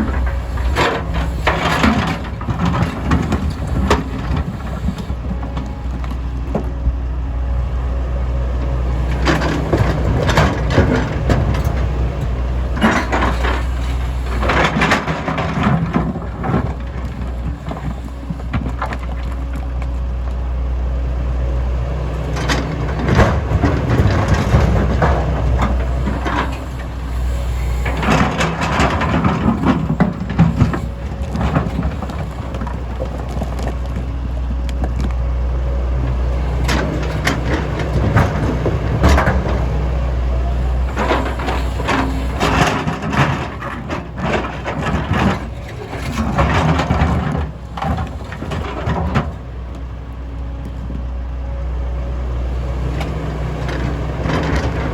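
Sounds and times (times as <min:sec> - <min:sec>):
excavator diesel engine running: 0:00.0 - 0:54.9
rocks clattering and crashing: 0:22.3 - 0:35.3.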